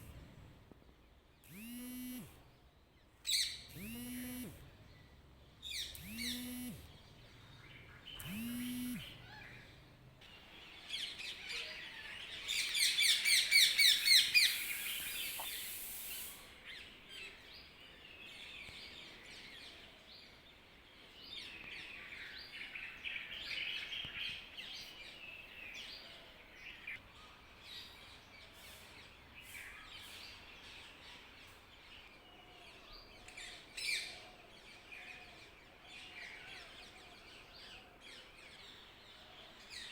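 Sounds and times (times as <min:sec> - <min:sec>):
birds chirping: 0:01.4 - 0:19.6.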